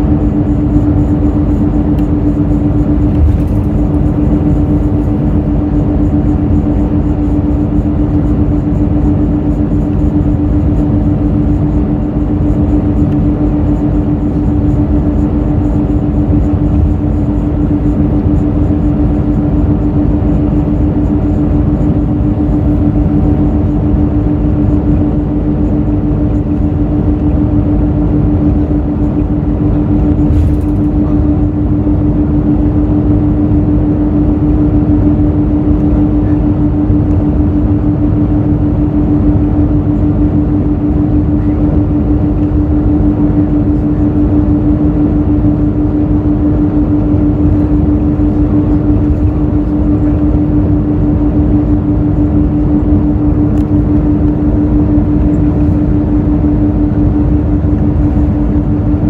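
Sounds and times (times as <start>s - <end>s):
bus diesel engine droning: 0.0s - 59.0s
road noise: 1.8s - 6.9s.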